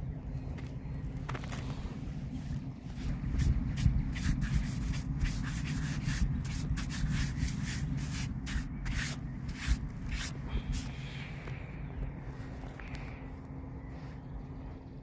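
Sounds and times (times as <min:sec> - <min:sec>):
rubbing and scratching on microphone: 0:01.4 - 0:11.0.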